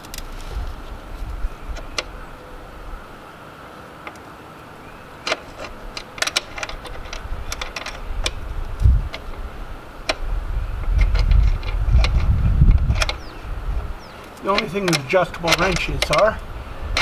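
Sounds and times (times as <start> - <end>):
wind buffeting microphone: 0.0 - 3.2, 5.5 - 17.0
wrench clinking on metal nut: 14.2 - 16.4.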